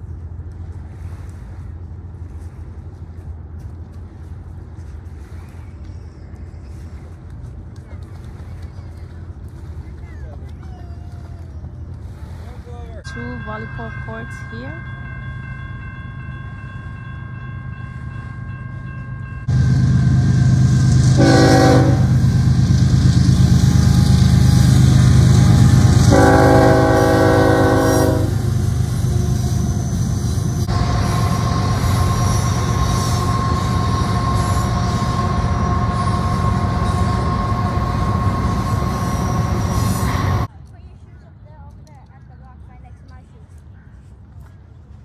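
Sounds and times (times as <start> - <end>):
diesel locomotive rumble: 0.0 - 40.5
train air horn blasts: 21.1 - 22.4, 25.3 - 30.0.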